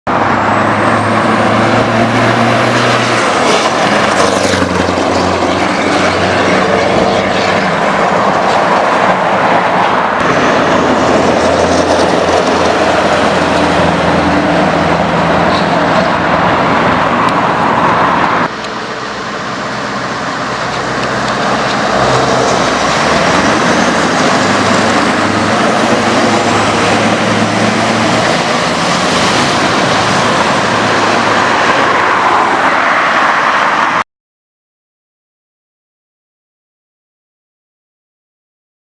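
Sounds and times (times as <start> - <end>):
diesel truck engine running: 10.2 - 31.6.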